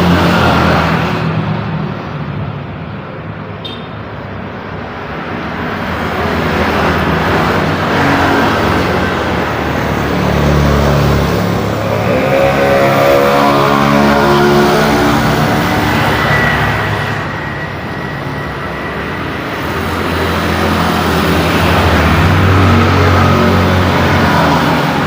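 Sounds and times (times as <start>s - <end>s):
heavy engine low drone: 0.0s - 25.0s
road traffic passing: 0.0s - 25.0s
engine accelerating: 6.9s - 25.0s.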